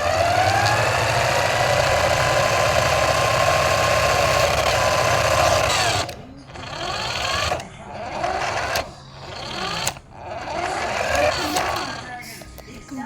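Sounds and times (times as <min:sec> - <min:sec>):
toy car motor whining: 0:00.0 - 0:12.5.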